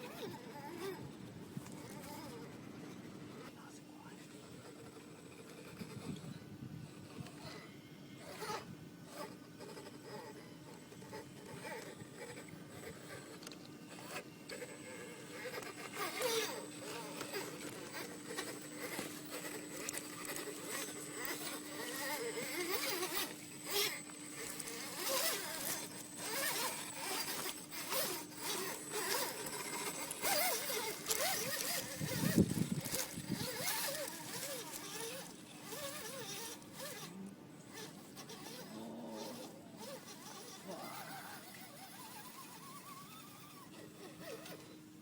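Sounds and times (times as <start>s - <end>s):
electric motor whining: 0.0s - 45.0s
tyres grinding over rock: 11.0s - 43.4s.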